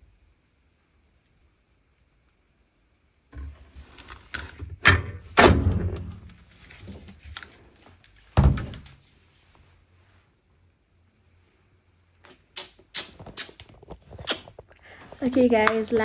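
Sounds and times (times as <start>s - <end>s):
objects thudding and knocking: 3.4s - 7.6s, 8.2s - 9.0s
rustling: 3.4s - 10.2s.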